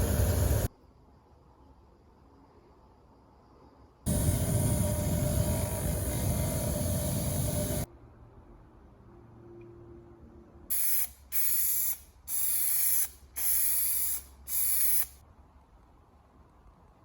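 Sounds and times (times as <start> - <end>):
spray nozzle hissing: 0.0 - 0.7, 10.7 - 15.2.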